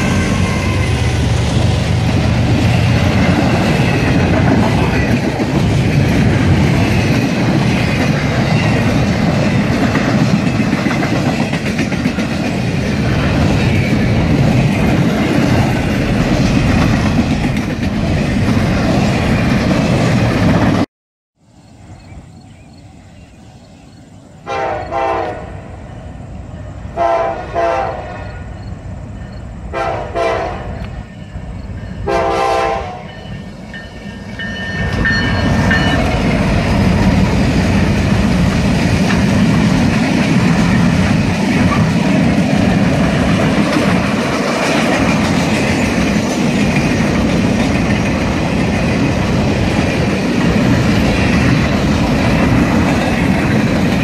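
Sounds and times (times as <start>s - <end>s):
locomotive air horn blasts: 0.0s - 1.2s, 24.5s - 25.7s, 27.0s - 28.2s, 29.7s - 30.8s, 32.0s - 33.2s.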